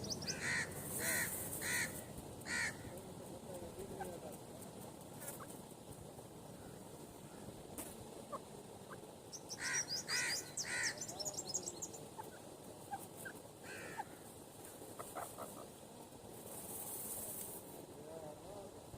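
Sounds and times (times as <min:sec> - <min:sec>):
bird chattering notes: 0:00.0 - 0:02.9, 0:08.2 - 0:14.1
bird harsh calls: 0:00.0 - 0:02.9, 0:08.2 - 0:15.8.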